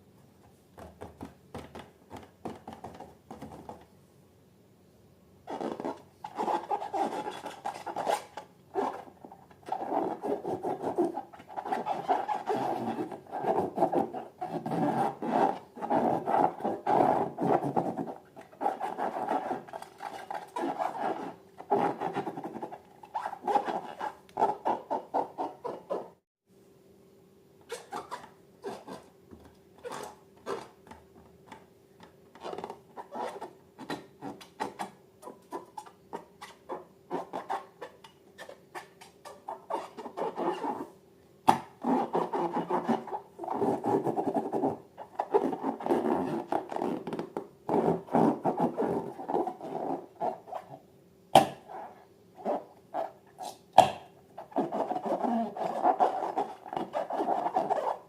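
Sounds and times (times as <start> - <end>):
faint steady hum: 0.0 - 58.0
balloons and slime rubbing: 5.5 - 26.1, 41.8 - 50.7, 54.4 - 58.0.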